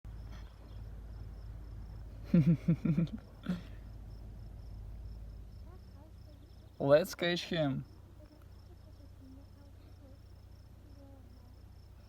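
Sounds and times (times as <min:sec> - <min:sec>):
steady low hum: 0:00.1 - 0:06.8
crickets chirping: 0:00.1 - 0:12.0.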